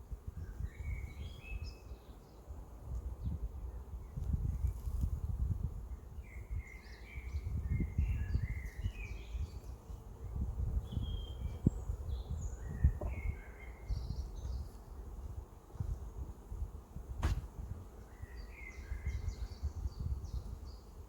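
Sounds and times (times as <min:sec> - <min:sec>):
low rumble on microphone: 0:02.8 - 0:20.8
songbirds chirping and singing: 0:05.9 - 0:15.1, 0:18.0 - 0:21.0.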